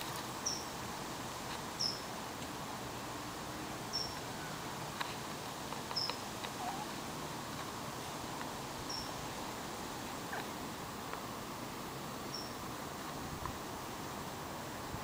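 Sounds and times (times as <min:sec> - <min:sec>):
steady background hiss: 0:00.0 - 0:15.0
bird chirping: 0:00.4 - 0:00.7, 0:01.8 - 0:02.1, 0:03.9 - 0:04.6, 0:08.9 - 0:09.2, 0:12.3 - 0:12.6.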